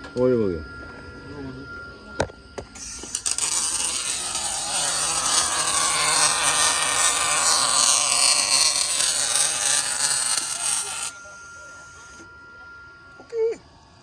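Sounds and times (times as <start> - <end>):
welding arc crackling hiss: 2.8 - 11.2.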